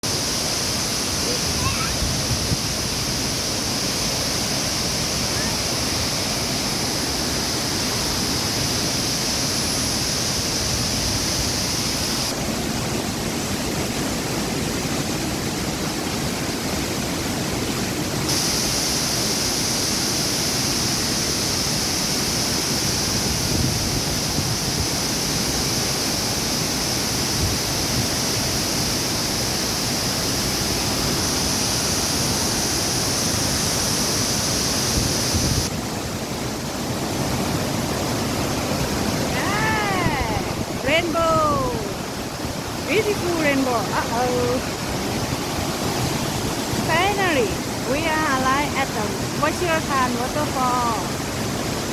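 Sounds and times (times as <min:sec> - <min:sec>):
waterfall rushing: 0:00.0 - 0:51.9
high hissing: 0:00.1 - 0:12.4, 0:18.3 - 0:35.7.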